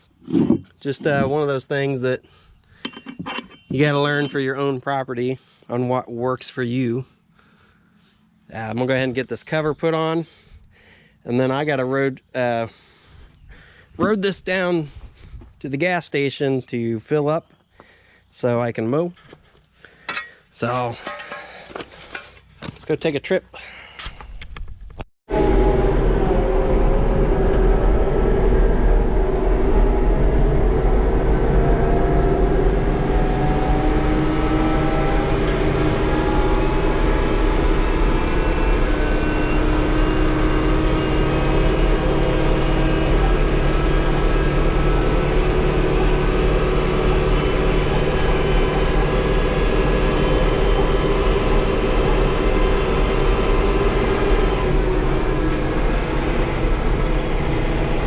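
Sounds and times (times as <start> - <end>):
tractor engine running: 32.3 - 58.0.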